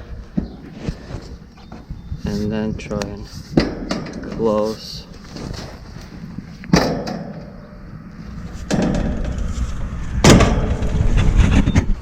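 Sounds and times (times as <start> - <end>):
metal rattling and scraping: 3.2 - 12.0.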